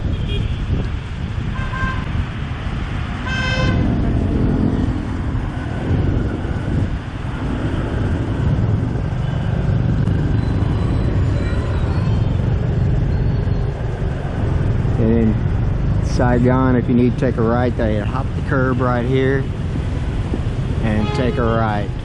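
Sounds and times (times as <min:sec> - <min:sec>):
motorbike engine and road rumble: 0:00.0 - 0:22.0
wind on microphone: 0:00.0 - 0:22.0
short horn toot: 0:20.9 - 0:21.6.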